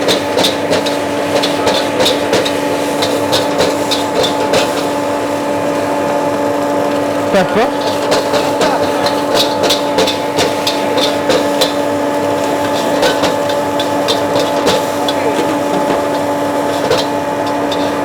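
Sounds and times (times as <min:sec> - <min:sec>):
steady hum: 0:01.1 - 0:18.0
metal spatula clanking on wok: 0:07.7 - 0:18.0.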